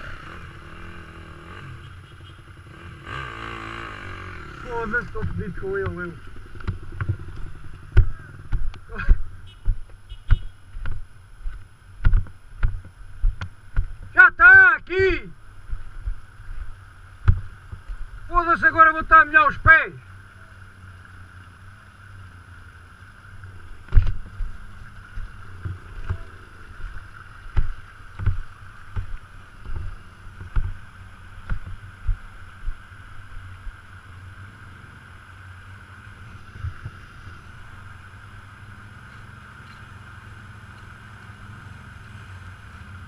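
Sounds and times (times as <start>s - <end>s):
dull knocks and thumps: 7.8s - 14.1s, 27.5s - 30.8s, 31.4s - 32.2s
steady low rumble: 23.1s - 34.1s.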